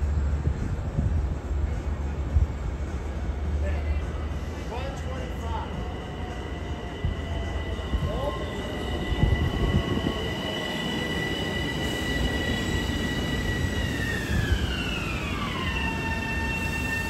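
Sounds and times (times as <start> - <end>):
wheels rumbling on rail: 0.0 - 17.0.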